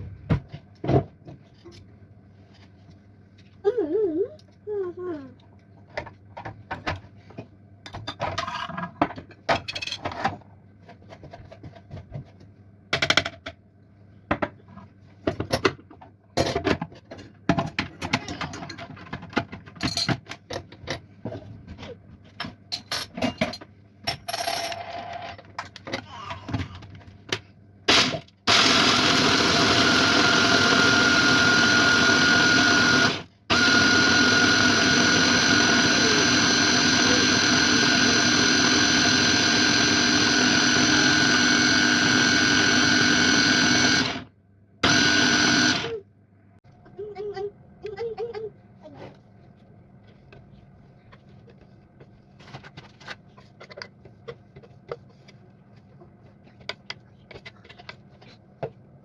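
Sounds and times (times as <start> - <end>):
electric blender motor whining: 27.9 - 46.0.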